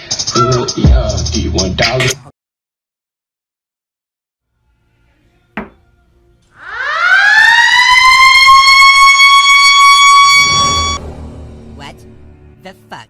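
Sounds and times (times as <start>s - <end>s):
siren winding up: 6.6s - 11.0s.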